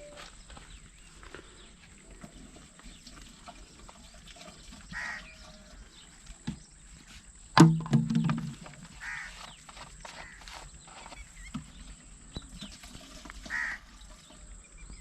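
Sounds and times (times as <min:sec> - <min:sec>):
bird calling: 0:04.9 - 0:05.8, 0:08.9 - 0:11.5, 0:13.4 - 0:14.0.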